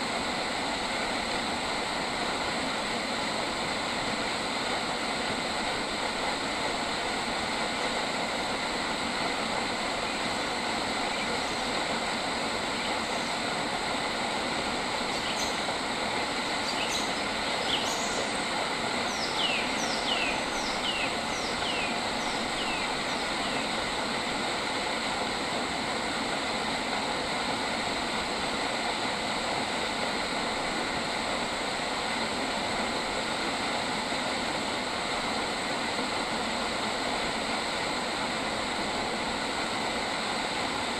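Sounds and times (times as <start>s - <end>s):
bird calling: 19.1s - 23.7s.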